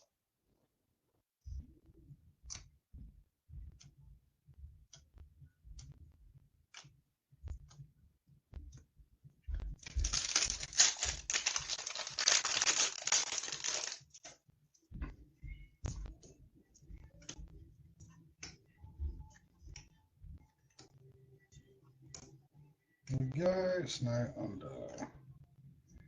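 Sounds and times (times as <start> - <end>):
foil wrapper tearing and crinkling: 9.8 - 14.1
trading cards being handled: 9.8 - 14.3.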